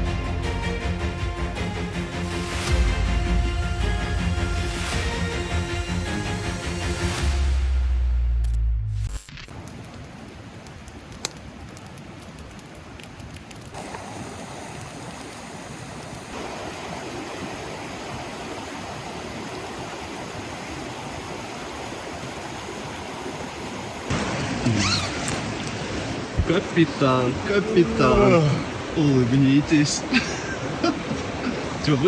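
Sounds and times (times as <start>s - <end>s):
river water rushing: 9.5s - 32.0s.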